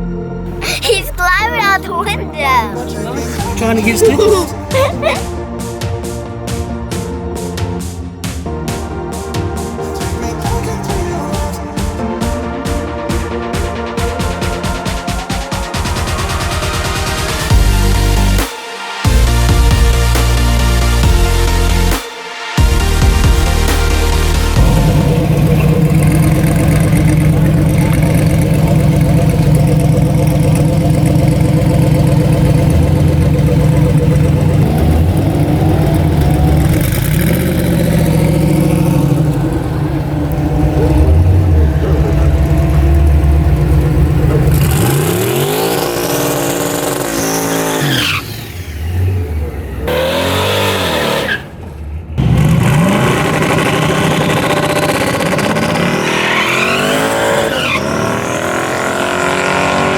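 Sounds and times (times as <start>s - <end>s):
race car engines revving: 22.8s - 59.9s.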